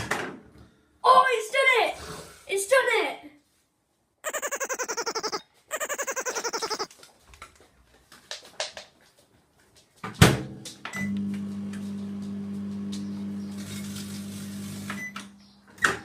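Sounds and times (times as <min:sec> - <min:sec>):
microwave oven humming: 0:11.0 - 0:15.4.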